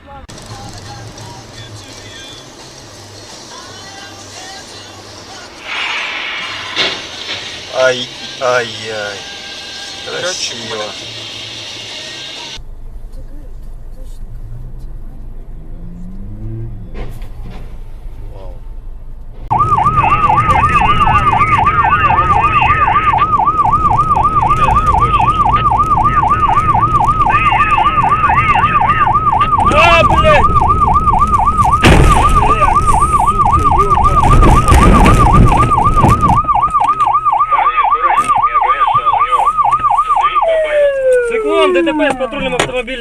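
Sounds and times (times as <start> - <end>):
road and engine noise: 0.0 - 43.0
siren in fast warble: 19.5 - 42.4.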